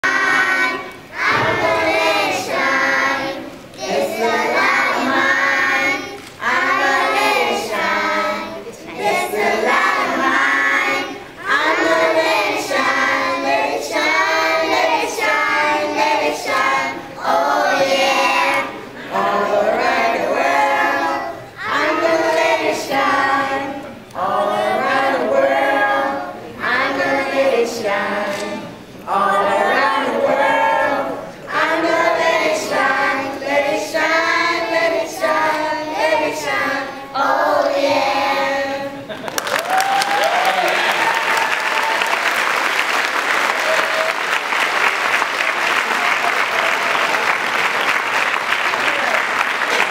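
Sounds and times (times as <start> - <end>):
children singing unaccompanied: 0.0 - 39.1.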